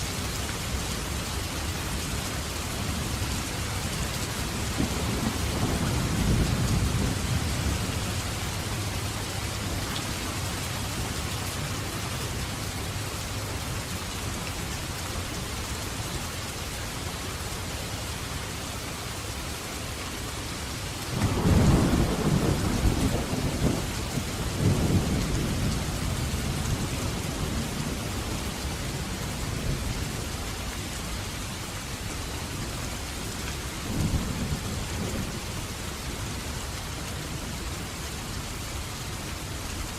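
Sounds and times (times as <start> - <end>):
heavy rain hissing: 0.0 - 39.9
thunder rumbling: 4.2 - 11.4, 21.1 - 30.2.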